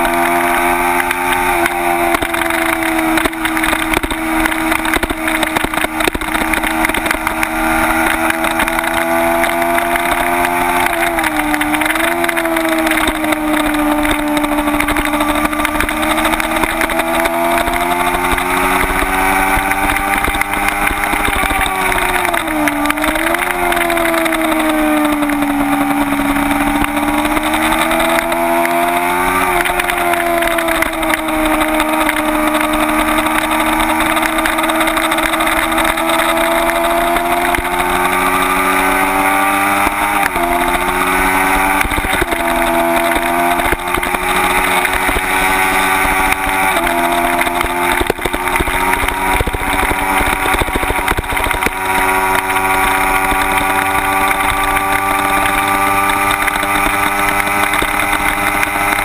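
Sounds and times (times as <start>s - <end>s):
motorcycle engine running hard: 0.0s - 59.0s
wind noise on microphone: 39.5s - 59.0s.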